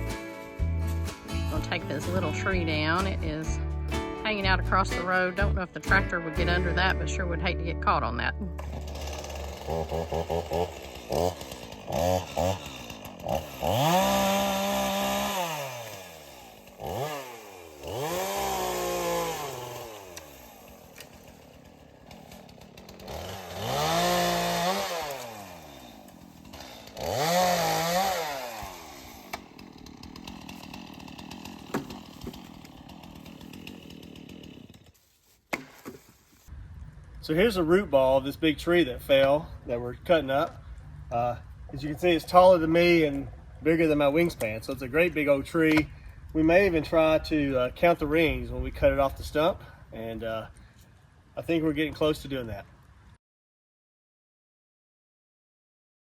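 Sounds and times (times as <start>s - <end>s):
chainsaw revving: 8.6s - 35.0s
chainsaw idling: 8.6s - 35.1s.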